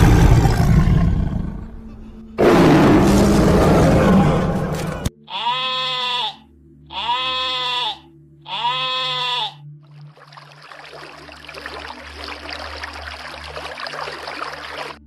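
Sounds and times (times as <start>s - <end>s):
lion roaring: 0.0s - 5.1s
sheep bleating: 4.4s - 9.7s.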